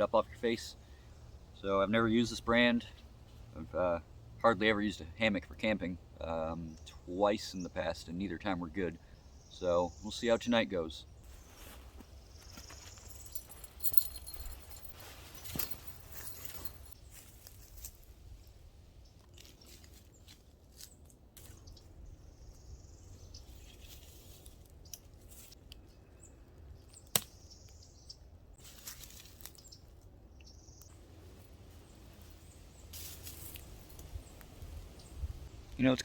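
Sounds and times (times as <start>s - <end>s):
soft bird chirps: 8.8s - 31.0s
hammock rustling and clicks: 11.4s - 18.5s, 32.9s - 34.7s.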